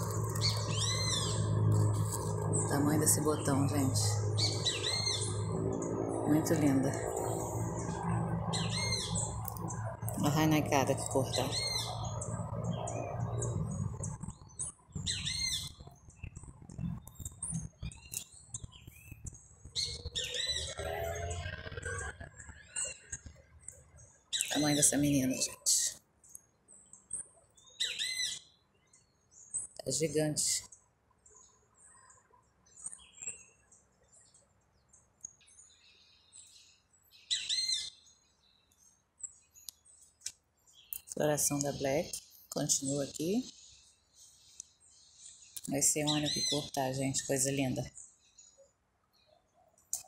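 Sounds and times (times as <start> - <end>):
low rumble: 0.0 - 19.8
small birds chirping: 0.0 - 50.0.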